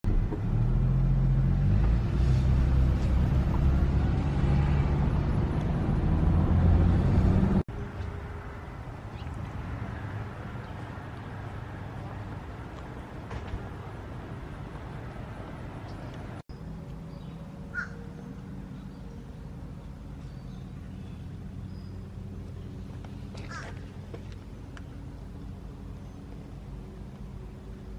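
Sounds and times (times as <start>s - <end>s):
loud low vehicle rumble: 0.0s - 27.9s
bird call: 17.2s - 18.9s, 23.3s - 24.0s.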